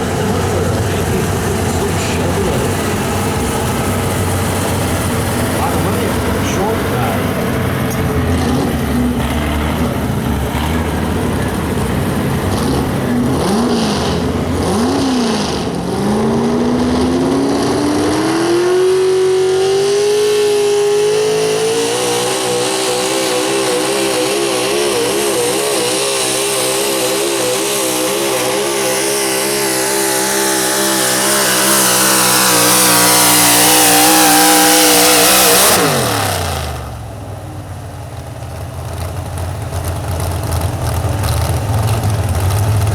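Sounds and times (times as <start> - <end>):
truck engine revving: 0.0 - 42.9.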